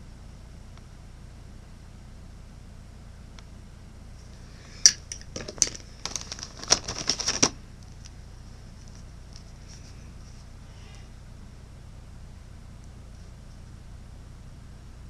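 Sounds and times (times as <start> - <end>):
packaging clicking and crinkling: 4.9 - 8.2.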